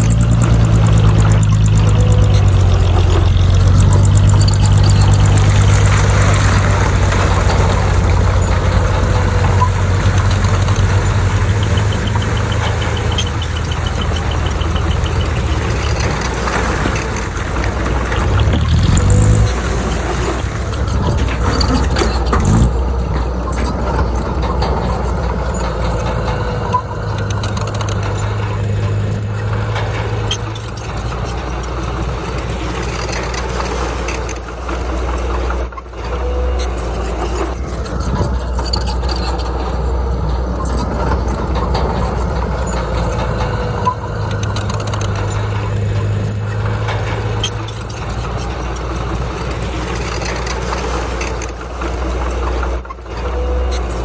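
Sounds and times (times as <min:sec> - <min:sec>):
heavy diesel engine droning: 0:00.0 - 0:54.0.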